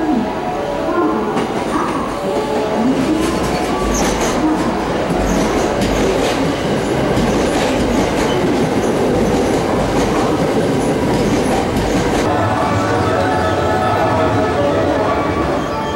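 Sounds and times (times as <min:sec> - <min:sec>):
train cars rumbling: 0:00.0 - 0:15.9
wheels clacking over rail joints: 0:01.3 - 0:12.3.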